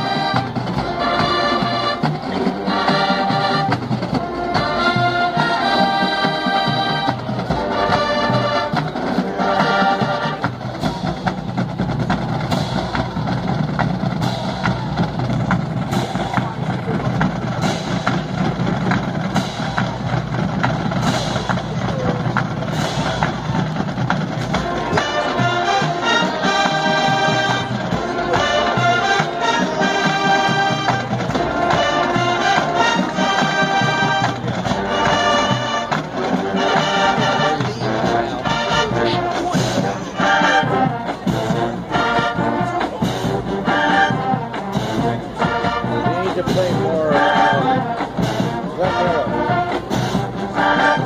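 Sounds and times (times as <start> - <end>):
brass section chords: 0.0 - 11.2, 24.4 - 51.0
marching band percussion: 0.0 - 51.0.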